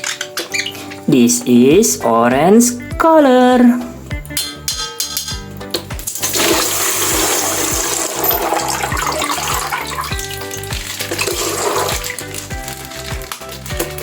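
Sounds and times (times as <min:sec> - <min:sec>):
background music with steady beat: 0:00.0 - 0:14.0
water rushing: 0:06.2 - 0:12.2.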